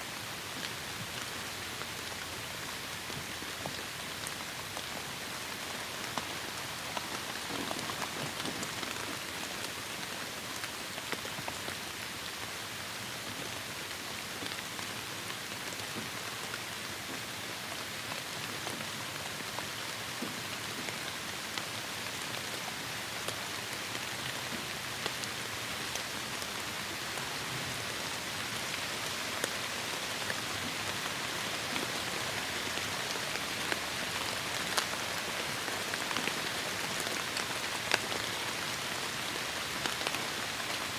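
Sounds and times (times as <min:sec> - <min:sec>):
heavy rain falling: 0:22.1 - 0:40.9.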